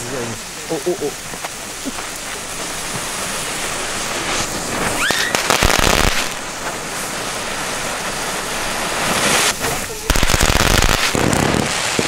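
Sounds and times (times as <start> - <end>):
ground fireworks hissing: 0.0 - 12.0
loud dense crackling: 0.0 - 12.0
rising whistle: 5.0 - 5.5.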